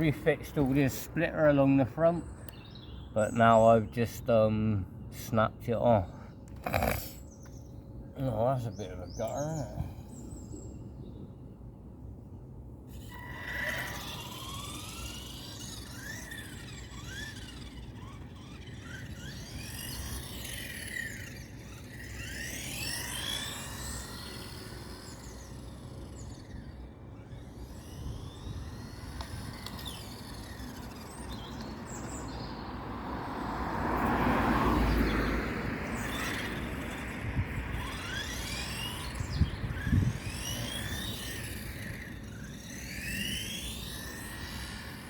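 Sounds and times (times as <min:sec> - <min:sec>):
electric toy car motor whine: 0:06.5 - 0:07.7, 0:12.8 - 0:45.0.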